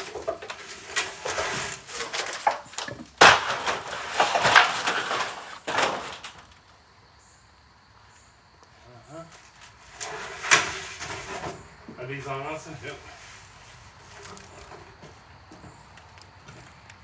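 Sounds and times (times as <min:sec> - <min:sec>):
wooden boards knocking and scraping: 0:00.0 - 0:06.6, 0:09.6 - 0:12.0, 0:14.0 - 0:17.0.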